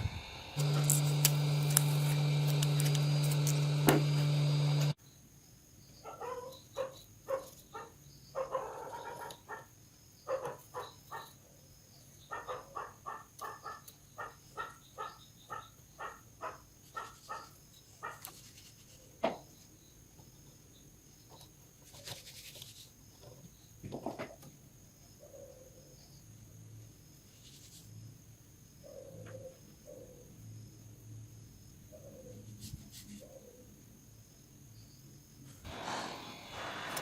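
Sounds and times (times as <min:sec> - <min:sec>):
loud electrical hum: 0:00.0 - 0:05.0.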